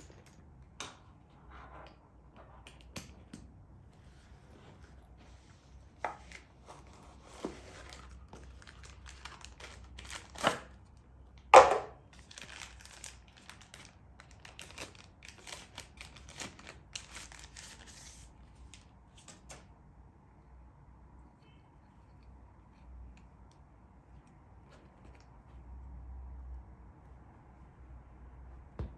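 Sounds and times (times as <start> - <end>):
packaging crinkling and rustling: 6.2 - 11.0, 12.2 - 19.6
packaging tearing: 7.8 - 10.7, 12.2 - 18.2.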